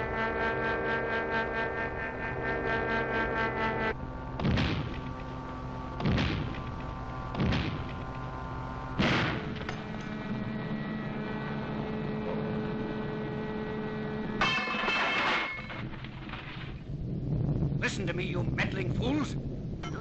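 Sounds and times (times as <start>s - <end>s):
steady held drone: 0.0s - 15.0s
heavy cartoon booms: 4.4s - 5.2s, 6.0s - 8.0s, 9.0s - 9.7s.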